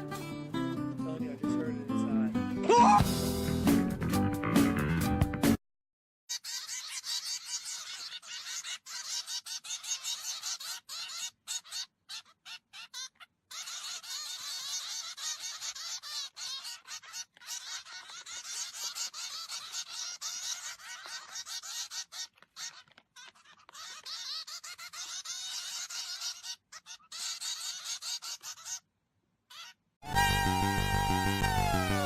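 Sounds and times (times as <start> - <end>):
birds chirping and chattering: 6.3 - 28.9, 29.5 - 30.4.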